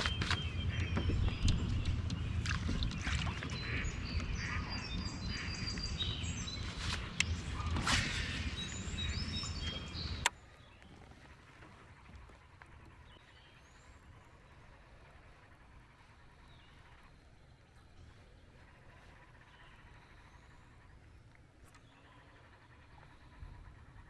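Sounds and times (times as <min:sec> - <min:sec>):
low rumbling noise: 0:00.0 - 0:10.3
small birds chirping: 0:00.0 - 0:24.0.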